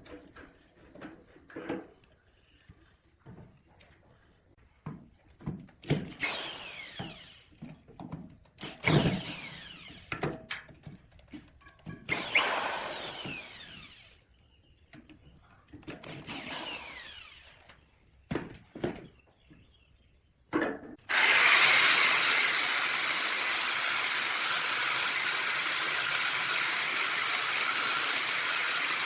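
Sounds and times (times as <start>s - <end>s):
power drill working wood: 6.1s - 7.6s, 8.6s - 10.1s, 12.1s - 14.2s, 16.0s - 17.6s, 21.1s - 29.0s.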